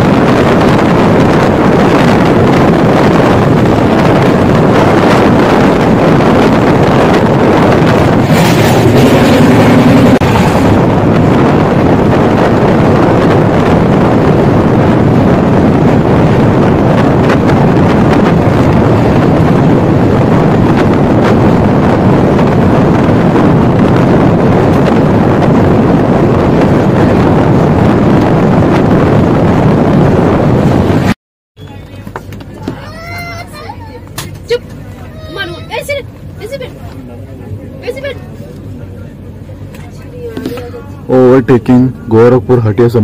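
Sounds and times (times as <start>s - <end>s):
moving train rumble: 0.0s - 43.0s
wind rushing over microphone: 0.0s - 43.0s.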